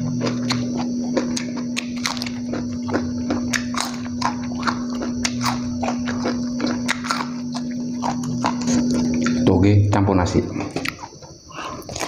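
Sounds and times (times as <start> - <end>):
wet chewing and lip smacking: 0.0 - 9.4
low hum: 0.0 - 12.0.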